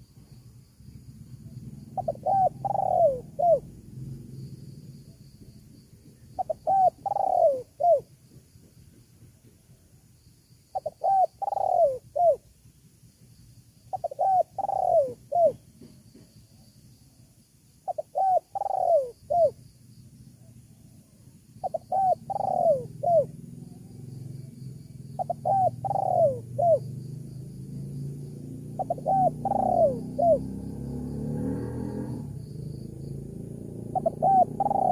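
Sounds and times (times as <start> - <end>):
dove cooing: 1.4 - 4.3, 6.0 - 8.1, 10.7 - 12.5, 13.9 - 15.9, 17.8 - 19.6, 20.4 - 24.6, 25.2 - 26.9, 28.7 - 30.6, 33.8 - 34.9.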